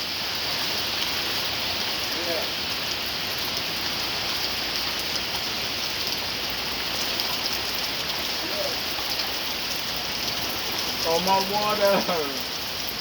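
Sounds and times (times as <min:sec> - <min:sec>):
rain falling steadily: 0:00.0 - 0:13.0.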